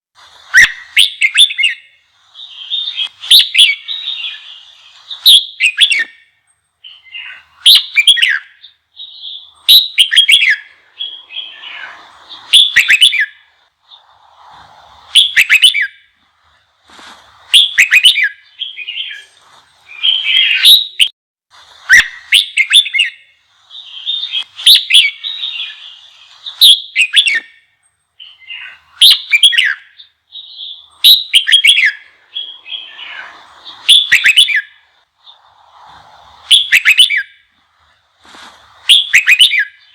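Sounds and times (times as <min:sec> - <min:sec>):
bulbul singing: 0:00.4 - 0:21.1, 0:21.8 - 0:39.9.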